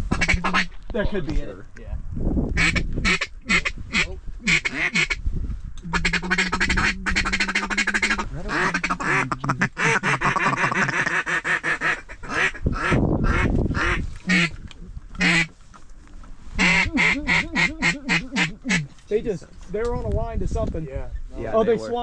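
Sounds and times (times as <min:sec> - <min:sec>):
duck calls quacking: 0:00.0 - 0:00.8, 0:02.6 - 0:05.2, 0:05.9 - 0:14.6, 0:15.2 - 0:15.5, 0:16.6 - 0:19.0.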